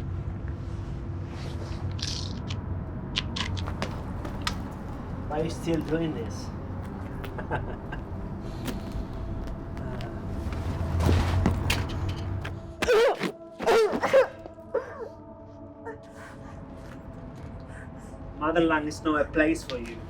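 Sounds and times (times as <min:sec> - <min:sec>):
low rumble: 0:00.0 - 0:12.8
gulls crying: 0:11.0 - 0:16.7.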